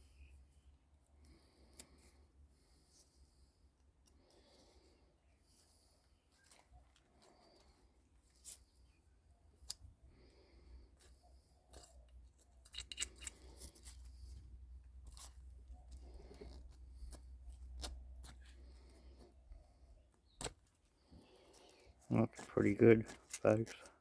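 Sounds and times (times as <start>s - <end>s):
snipping scraping and clicking: 11.7s - 14.1s, 22.4s - 24.0s.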